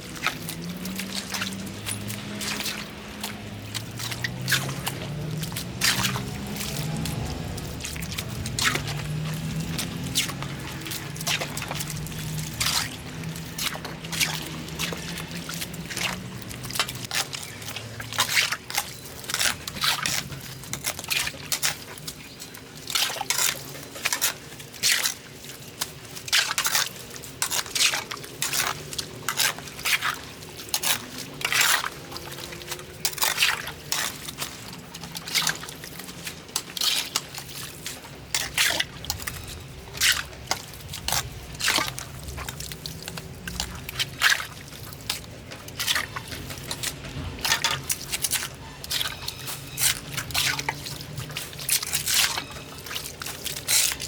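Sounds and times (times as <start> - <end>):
water splashing and sloshing: 0.0 - 54.0.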